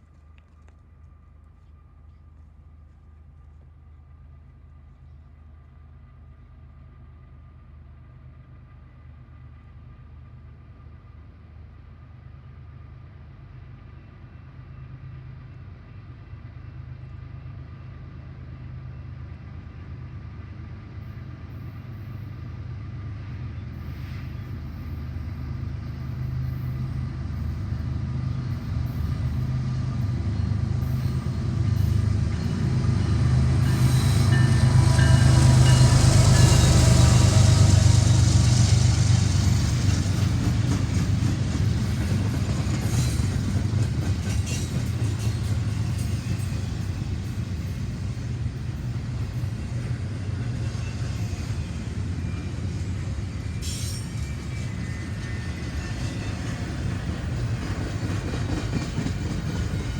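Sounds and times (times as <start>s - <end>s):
train engine rumble: 0.0s - 59.9s
train wheels on rails: 13.3s - 59.9s.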